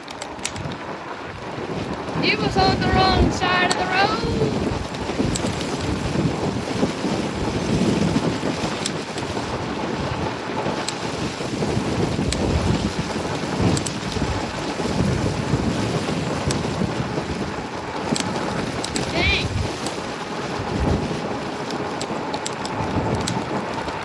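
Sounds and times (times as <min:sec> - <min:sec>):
wind buffeting microphone: 0:00.0 - 0:24.0
faint ticks: 0:13.7 - 0:14.2, 0:18.0 - 0:19.2, 0:21.6 - 0:23.9.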